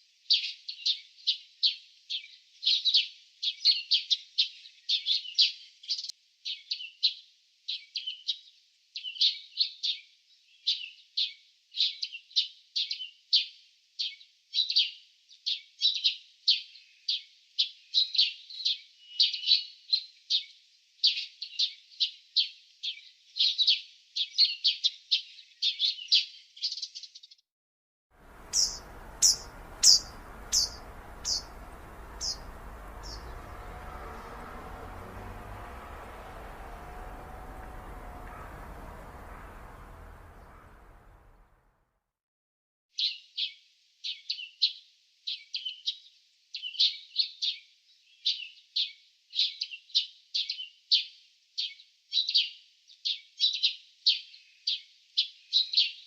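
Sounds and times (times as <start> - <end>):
steady outdoor hiss: 28.2 - 41.5
small birds chirping: 28.2 - 41.6.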